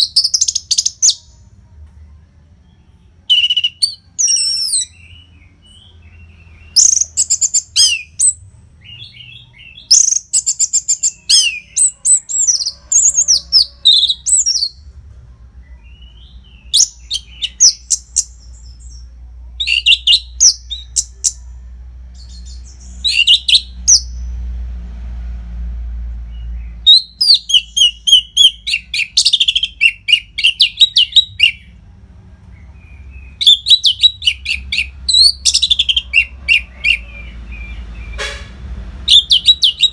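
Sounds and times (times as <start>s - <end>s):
thrush singing: 32.8s - 38.2s.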